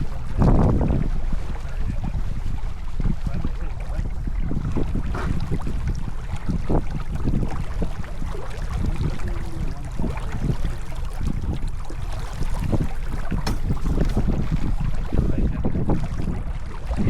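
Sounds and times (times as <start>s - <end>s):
water splashes: 0.0s - 17.0s
wind buffeting microphone: 0.0s - 17.0s
knocks: 13.4s - 14.3s.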